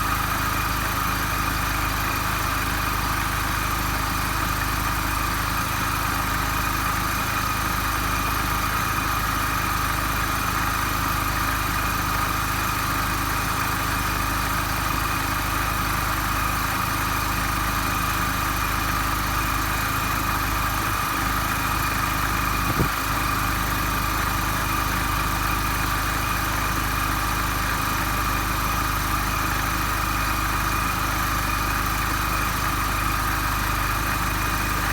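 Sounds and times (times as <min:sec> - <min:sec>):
car engine idling with whine: 0:00.0 - 0:34.9
short knock: 0:22.6 - 0:23.0.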